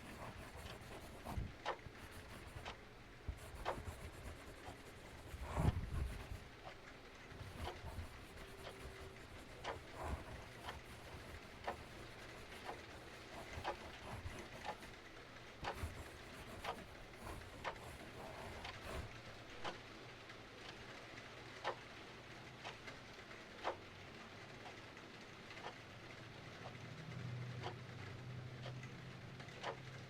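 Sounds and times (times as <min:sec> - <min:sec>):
clock ticking: 0:00.0 - 0:06.8, 0:07.4 - 0:19.8.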